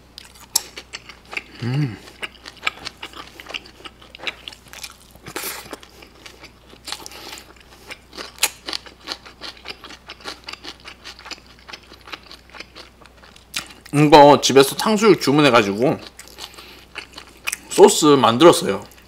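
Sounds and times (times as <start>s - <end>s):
person chewing: 0.1s - 14.0s, 15.8s - 17.8s.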